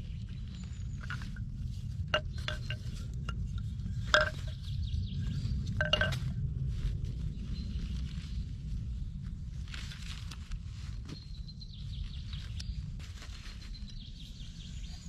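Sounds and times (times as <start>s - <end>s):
hard objects clinking: 2.1s - 4.6s, 5.8s - 6.3s.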